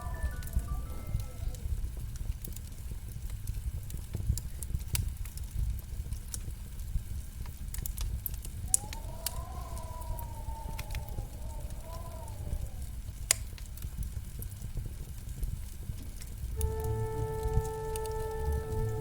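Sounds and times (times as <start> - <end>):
faint wavering tone: 0.0 - 1.6
wood fire crackling: 0.0 - 19.0.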